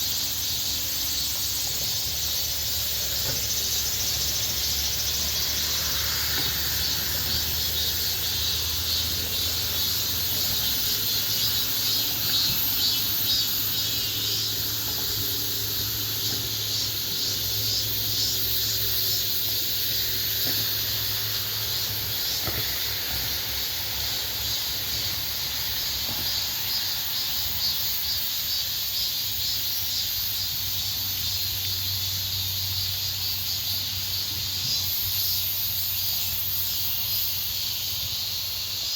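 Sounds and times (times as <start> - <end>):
cicadas buzzing: 0.0 - 38.9
crickets trilling: 0.0 - 38.9.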